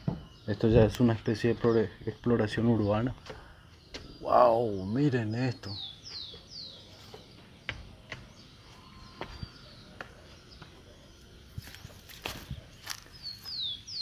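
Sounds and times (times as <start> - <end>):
faint outdoor ambience: 0.0 - 14.0
footsteps and light clicks: 6.1 - 13.7.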